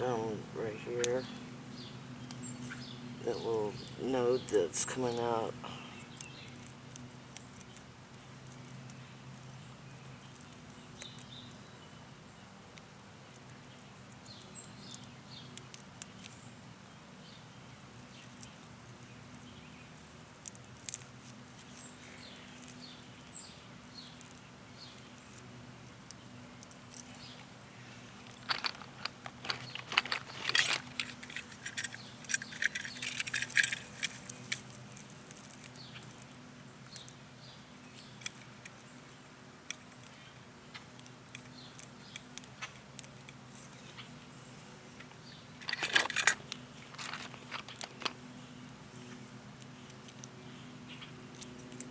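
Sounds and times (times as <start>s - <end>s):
crackling: 0.6s - 12.0s, 12.6s - 51.9s
rustling of plant and straw: 16.0s - 51.9s.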